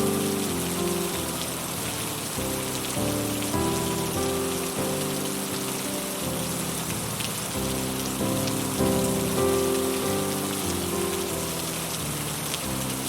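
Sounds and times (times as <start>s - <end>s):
heavy rain on a roof: 0.0s - 13.0s
slow music of held notes: 0.0s - 13.0s.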